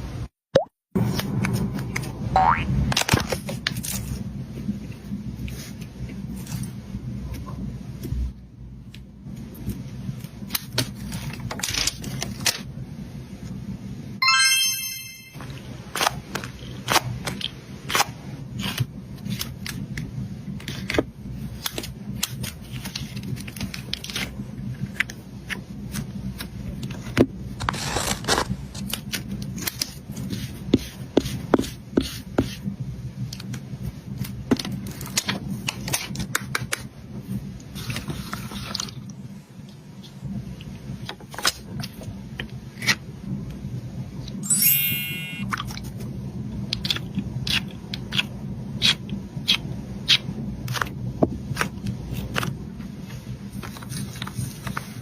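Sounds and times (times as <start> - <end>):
chiming sound effect: 14.2 - 15.4, 44.4 - 45.5.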